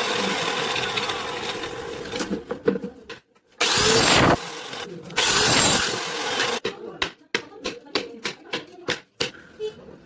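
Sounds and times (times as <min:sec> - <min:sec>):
woodworking power tool running: 0:00.0 - 0:02.4, 0:03.6 - 0:06.6.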